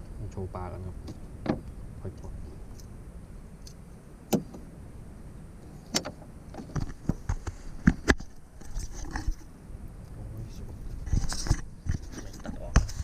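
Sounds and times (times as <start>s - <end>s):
knocks and clatter in boat: 1.0s - 1.7s.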